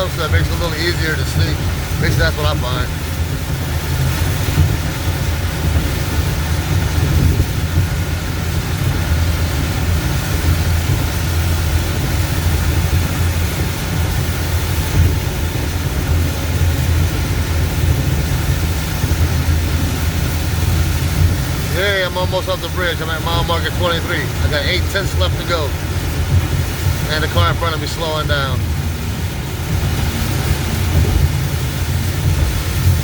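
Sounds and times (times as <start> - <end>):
car driving rumble inside cabin: 0.0 - 33.0
heavy rain: 0.0 - 33.0
wind hiss: 0.0 - 33.0.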